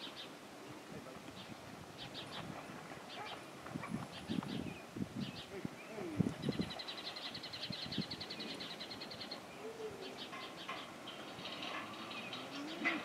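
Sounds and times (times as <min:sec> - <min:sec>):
songbird chirping trill: 0:00.0 - 0:00.4, 0:04.1 - 0:13.0
faint low shuffling of herd: 0:00.0 - 0:13.0.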